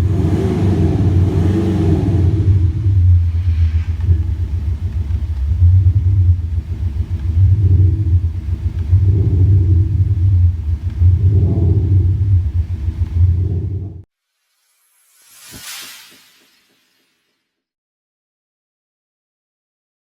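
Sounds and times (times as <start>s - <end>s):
deep engine rumble: 0.0s - 14.1s.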